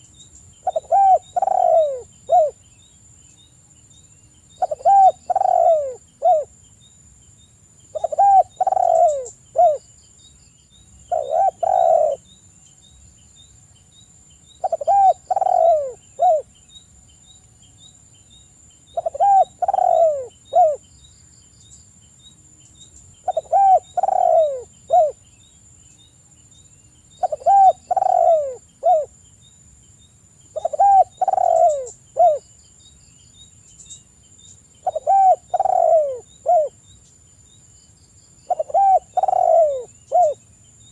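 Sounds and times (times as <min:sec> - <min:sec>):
dove cooing: 0:00.6 - 0:02.6, 0:04.6 - 0:06.5, 0:07.9 - 0:09.8, 0:11.1 - 0:12.2, 0:14.6 - 0:16.5, 0:18.9 - 0:20.8, 0:23.2 - 0:25.2, 0:27.2 - 0:29.2, 0:30.5 - 0:32.4, 0:34.8 - 0:36.8, 0:38.5 - 0:40.4.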